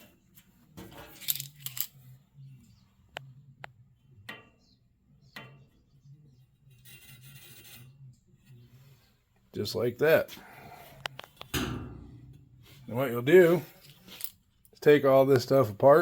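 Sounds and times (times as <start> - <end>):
faint low hum: 0.0 - 14.8
metallic clicks and clinks: 1.1 - 1.9.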